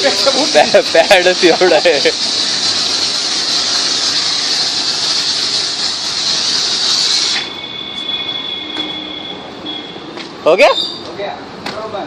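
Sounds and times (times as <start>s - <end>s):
foam machine hissing: 0.0s - 9.2s
faint high whine: 7.2s - 10.0s.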